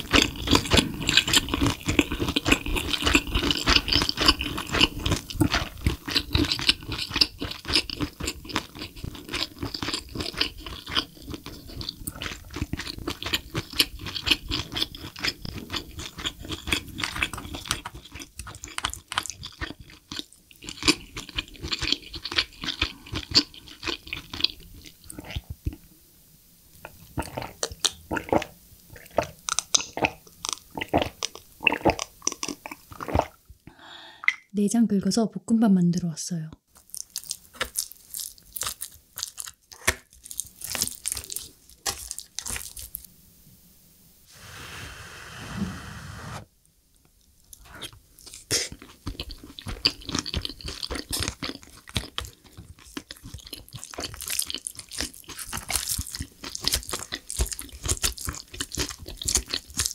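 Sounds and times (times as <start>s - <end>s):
chewing mouth clicks and smacks: 47.5s - 59.9s.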